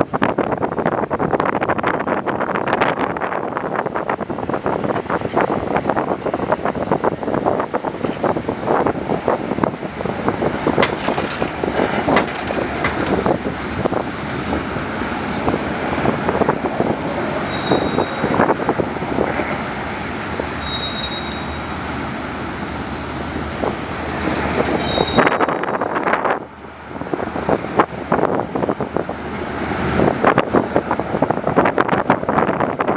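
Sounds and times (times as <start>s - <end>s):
road and wind noise: 0.0s - 32.9s
knocks and rattles: 10.7s - 14.0s.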